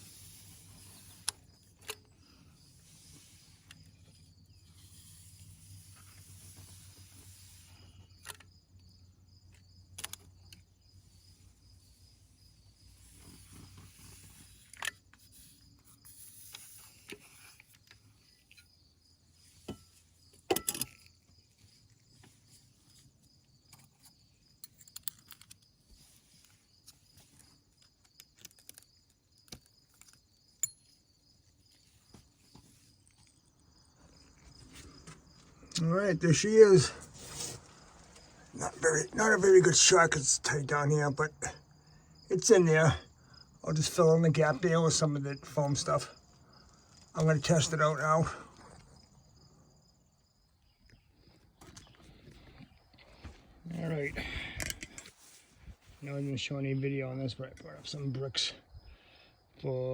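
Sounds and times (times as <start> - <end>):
insects chirping: 0.0 - 59.9
clicks and metallic rattles: 20.4 - 21.2.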